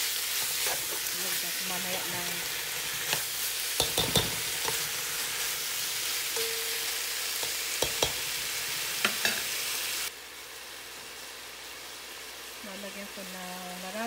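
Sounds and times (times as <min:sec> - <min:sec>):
meat and onions sizzling in pan: 0:00.0 - 0:14.0.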